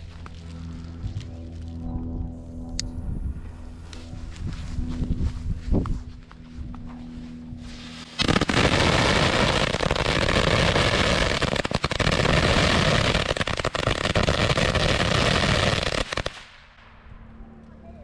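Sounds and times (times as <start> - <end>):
firecracker rapid pops and hiss: 8.2 - 16.5.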